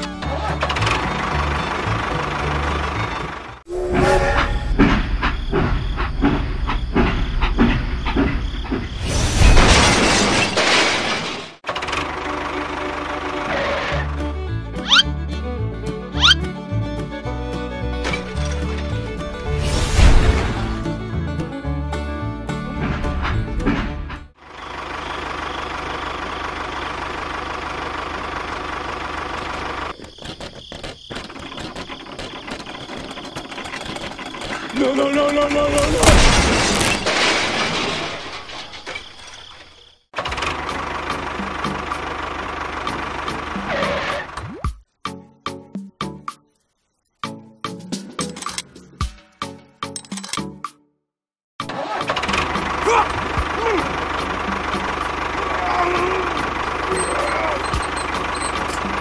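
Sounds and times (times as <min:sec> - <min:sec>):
toy train wheels clacking: 0:56.7 - 0:59.0.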